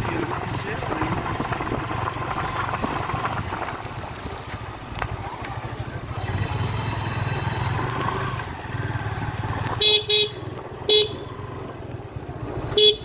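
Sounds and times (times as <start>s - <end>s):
motorcycle engine rumble: 0.0s - 13.0s
horn beeps: 6.1s - 7.9s.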